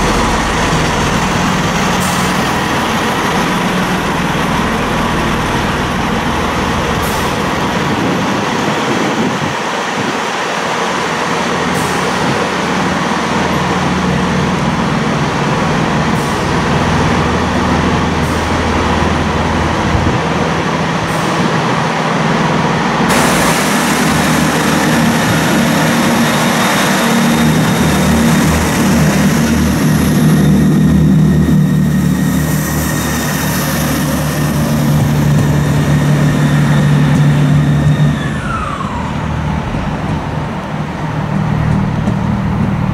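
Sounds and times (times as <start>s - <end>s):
diesel train engines droning: 0.0s - 42.9s
hiss: 23.1s - 27.8s.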